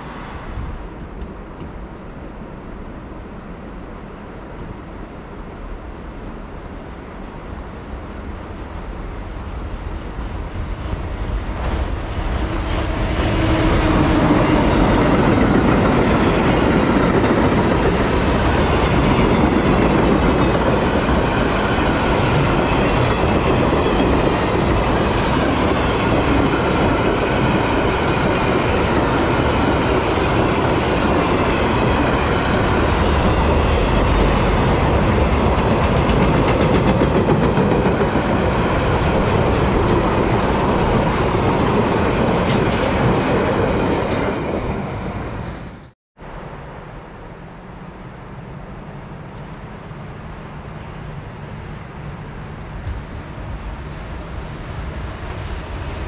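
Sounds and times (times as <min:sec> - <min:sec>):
freight train passing: 0:00.0 - 0:56.0.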